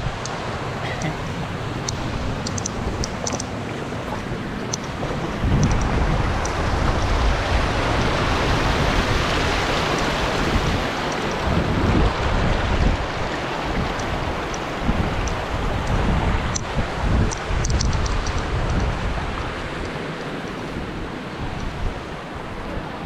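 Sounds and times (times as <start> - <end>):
waterfall rushing: 0.0 - 23.0
wind gusting on microphone: 0.0 - 23.0.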